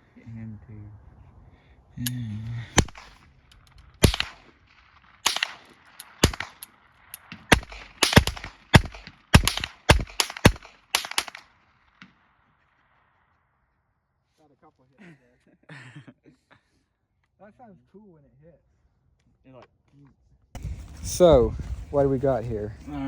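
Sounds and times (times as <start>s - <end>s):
rifle shots: 2.8s - 12.3s.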